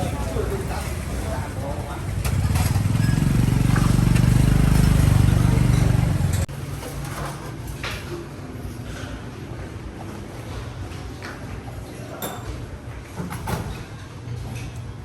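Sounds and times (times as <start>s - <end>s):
engine running: 0.0s - 6.5s.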